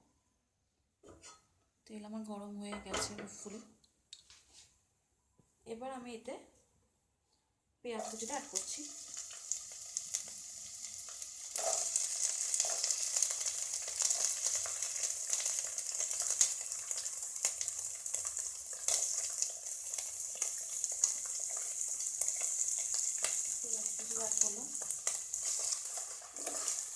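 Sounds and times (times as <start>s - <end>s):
onion sizzling in hot oil: 7.9s - 26.9s.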